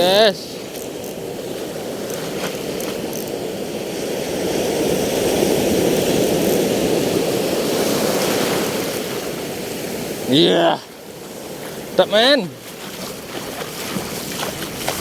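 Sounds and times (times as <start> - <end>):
fishing reel whirring: 2.0 - 3.4.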